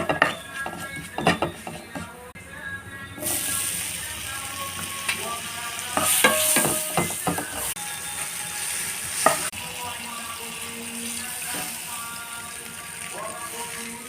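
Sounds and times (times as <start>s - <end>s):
utensil scraping a pan: 0.0s - 2.3s
food sizzling in a pan: 3.2s - 14.0s.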